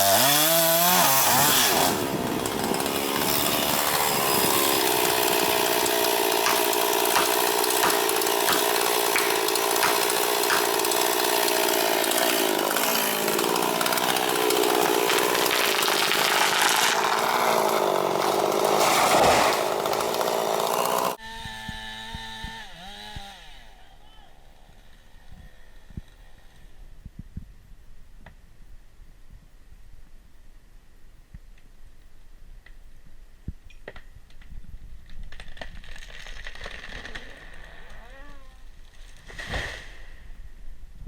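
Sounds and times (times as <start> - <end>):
chainsaw cutting wood: 0.0 - 26.8, 35.2 - 38.2, 38.9 - 40.1
chainsaw engine idling hum: 2.0 - 15.1.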